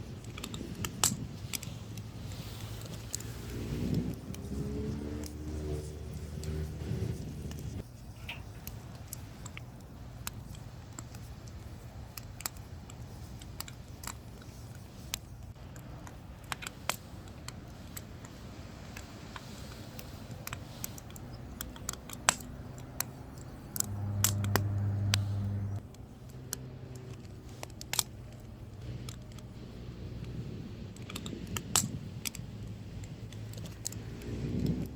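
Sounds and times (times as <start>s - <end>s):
firewood crackling and popping: 0.0s - 34.9s
low hum: 15.5s - 34.9s
loud low droning hum: 21.9s - 31.0s.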